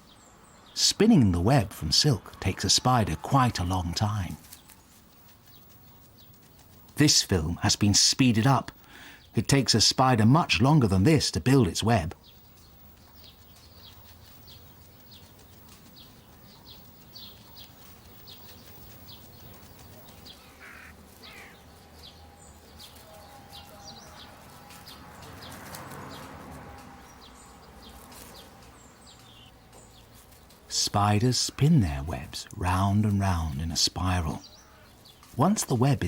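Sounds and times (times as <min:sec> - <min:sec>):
small birds chirping: 0:00.0 - 0:36.0
rustling noise: 0:03.6 - 0:08.8, 0:12.3 - 0:32.4.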